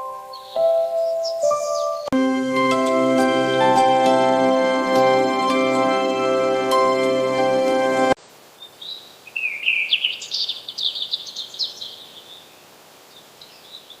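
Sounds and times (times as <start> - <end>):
background music: 0.0 - 8.2.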